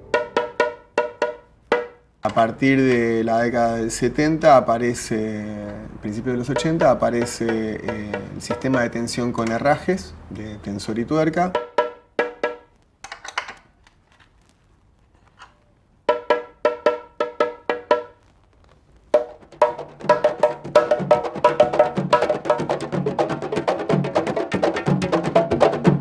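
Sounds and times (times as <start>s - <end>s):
deep drum tones: 0.0s - 10.4s, 19.2s - 26.0s
stick clacking on wood: 5.6s - 9.9s.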